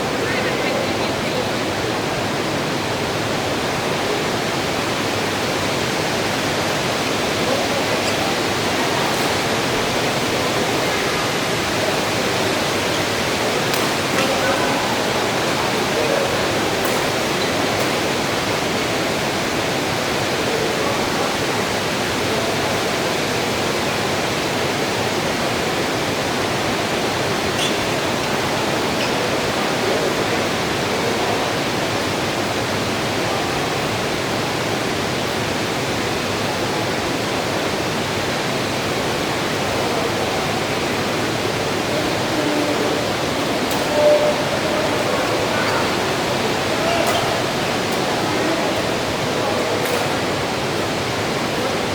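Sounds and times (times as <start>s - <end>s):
heavy rain: 0.0s - 51.9s.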